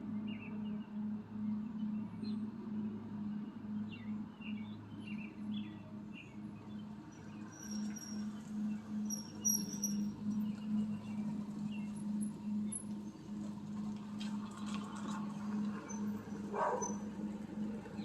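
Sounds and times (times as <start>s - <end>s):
low pulsing hum: 0.0s - 18.0s
birds chirping: 14.6s - 17.1s.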